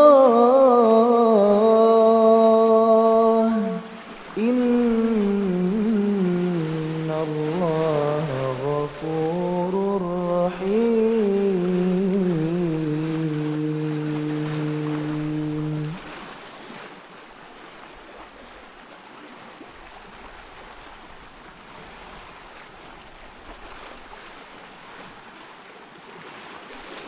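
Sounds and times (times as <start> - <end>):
person reciting in sustained note: 0.0 - 16.1
water rushing: 0.0 - 27.0.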